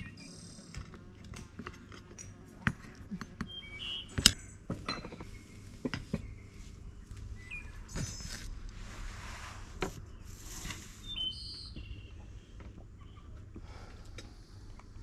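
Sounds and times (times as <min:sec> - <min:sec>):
bird chirps: 0:03.4 - 0:04.6, 0:07.3 - 0:08.4, 0:11.0 - 0:12.3.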